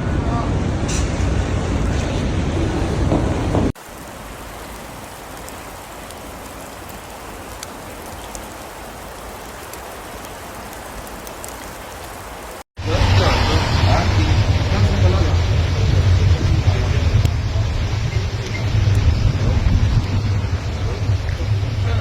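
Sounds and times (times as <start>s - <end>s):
loud street noise: 0.0s - 3.8s, 12.8s - 22.0s
rain and wet snow hissing: 1.1s - 22.0s.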